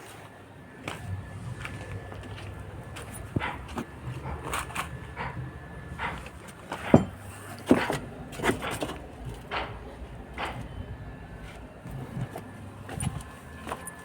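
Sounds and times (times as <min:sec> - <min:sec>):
low steady hum: 0:00.3 - 0:14.0
irregular knocks and clatters: 0:00.9 - 0:10.8.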